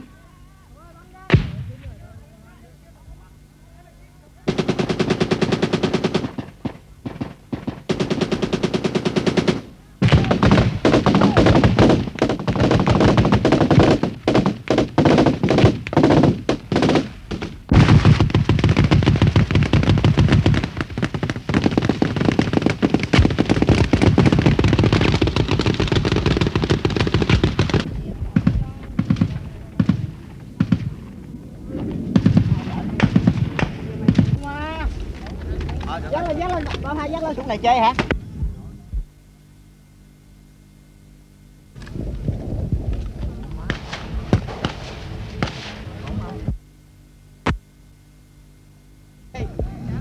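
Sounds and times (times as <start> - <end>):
automatic weapons firing: 4.5 - 31.1, 32.1 - 34.8, 43.6 - 45.8.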